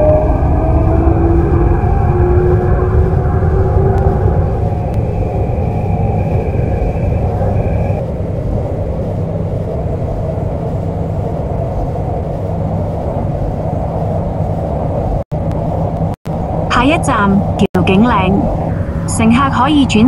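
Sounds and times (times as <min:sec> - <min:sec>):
high steady whine: 0:00.0 - 0:20.0.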